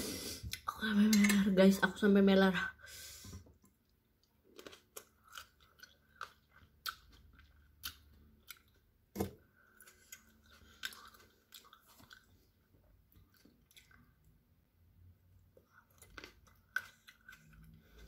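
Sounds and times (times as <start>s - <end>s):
chewing and crunching vegetables: 3.6s - 14.4s, 15.4s - 18.0s.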